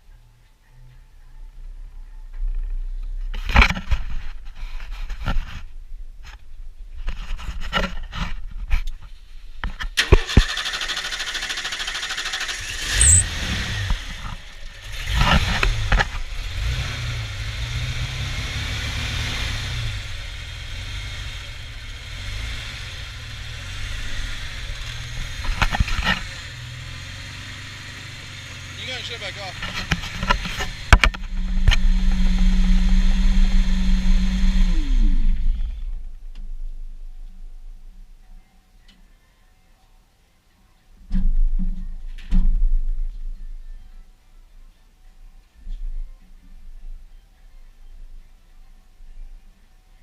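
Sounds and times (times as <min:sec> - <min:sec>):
truck engine starting and idling: 0:09.9 - 0:37.8
short high squeal: 0:12.9 - 0:13.3.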